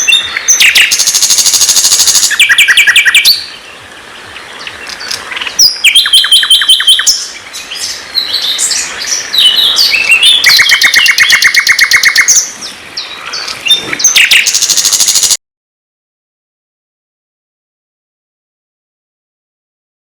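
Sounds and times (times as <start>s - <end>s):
songbird singing: 0.0s - 15.4s.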